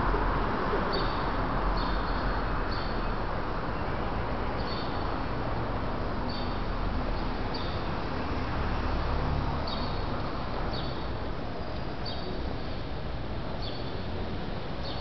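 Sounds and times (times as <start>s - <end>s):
city background hum and hiss: 0.0s - 15.0s.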